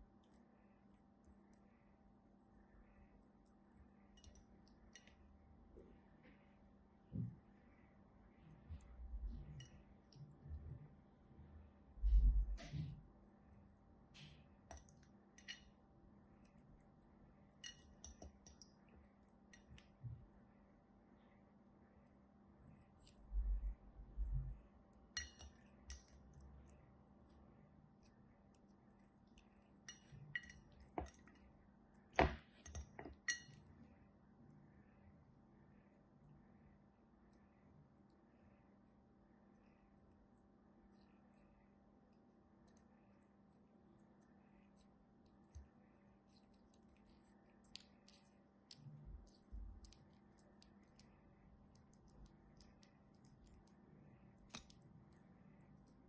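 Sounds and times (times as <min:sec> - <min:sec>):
low room hiss: 0:00.0 - 0:56.0
faint clicking and crackling: 0:39.4 - 0:56.0.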